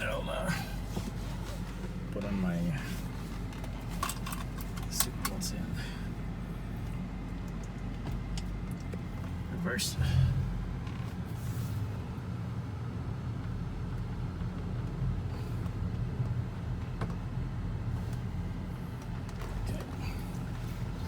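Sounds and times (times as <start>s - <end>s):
car engine low hum: 0.0s - 21.0s.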